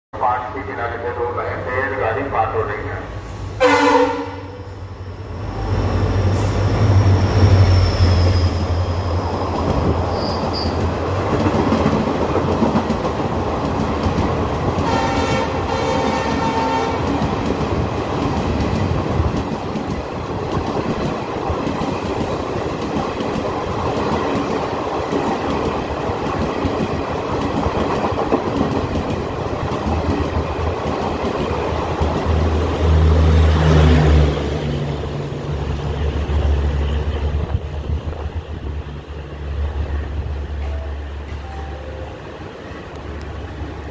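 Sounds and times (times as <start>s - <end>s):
diesel locomotive engine drone: 0.2s - 43.9s
train horn: 3.6s - 4.7s, 14.8s - 17.1s
coaches rolling on rails: 5.2s - 43.9s.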